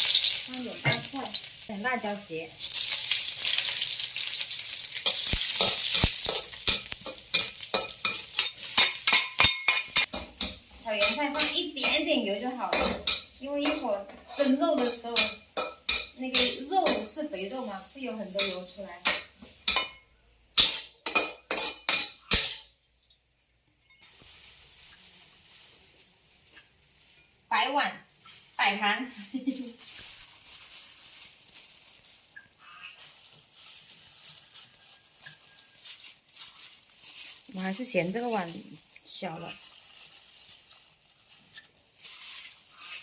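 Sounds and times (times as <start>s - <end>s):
oil sizzling in a wok: 0.0s - 43.0s
metal spatula scraping pan: 3.5s - 20.0s, 20.6s - 22.8s.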